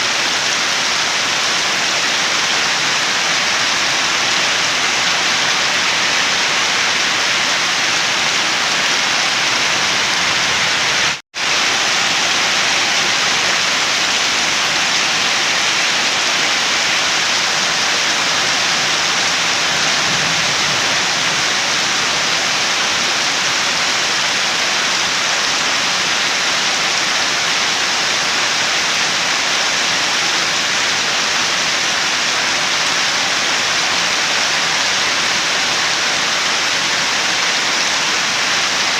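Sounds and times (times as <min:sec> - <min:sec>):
heavy rainfall: 0:00.0 - 0:38.9.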